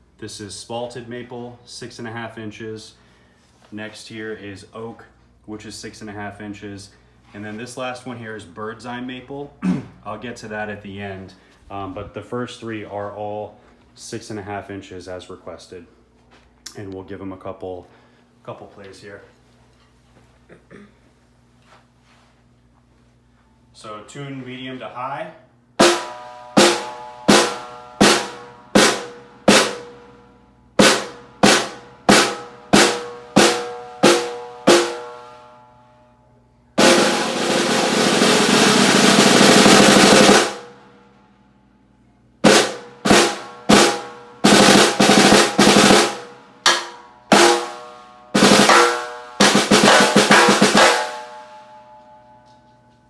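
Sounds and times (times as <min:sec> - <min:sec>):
snare drum strokes and rolls: 0:25.8 - 0:30.0, 0:30.8 - 0:35.2, 0:36.8 - 0:40.7, 0:42.4 - 0:51.5.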